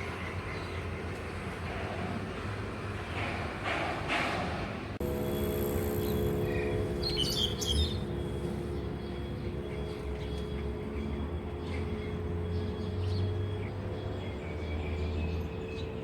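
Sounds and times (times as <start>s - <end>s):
steady low hum: 5.0s - 13.8s
bird chirping: 5.2s - 15.9s.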